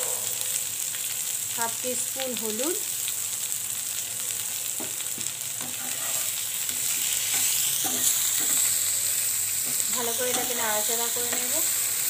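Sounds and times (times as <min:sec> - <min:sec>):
vegetables sizzling in oil: 0:00.0 - 0:12.0
spatula scraping a pan: 0:05.6 - 0:08.7, 0:09.6 - 0:11.5.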